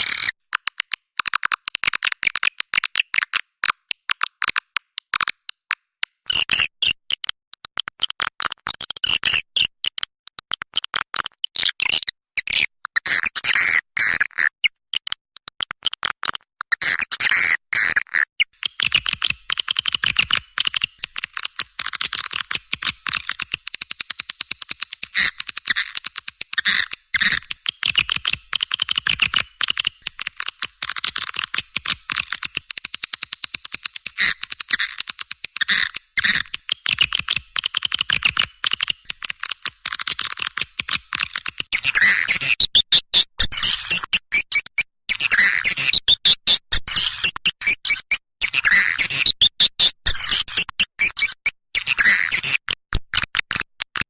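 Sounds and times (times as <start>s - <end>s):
rapid high chirps chattering: 18.6s - 52.6s.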